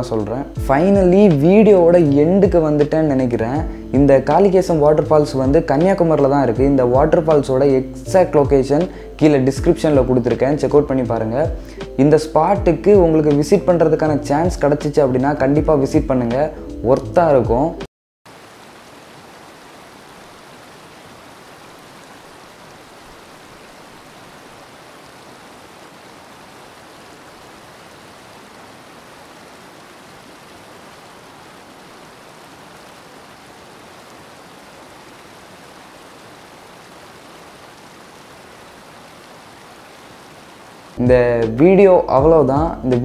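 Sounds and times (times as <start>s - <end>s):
waterfall rushing: 18.3s - 41.0s.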